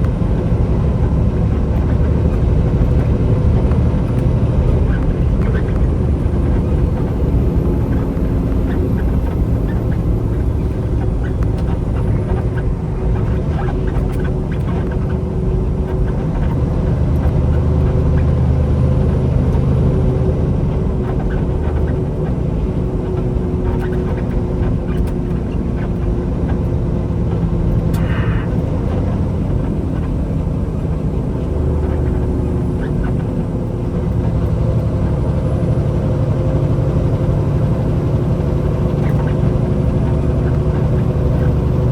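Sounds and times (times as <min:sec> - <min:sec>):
diesel truck engine drone: 0:00.0 - 0:41.9
low road rumble: 0:00.0 - 0:41.9.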